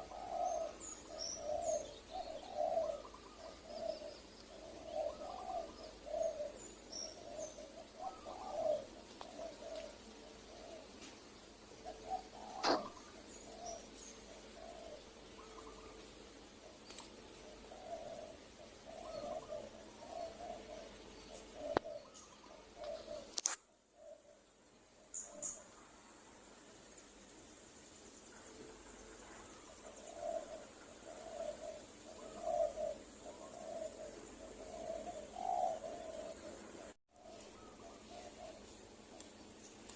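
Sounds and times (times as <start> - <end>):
doves cooing: 0.0 - 25.8, 28.3 - 39.9
sharp click: 23.3 - 23.6.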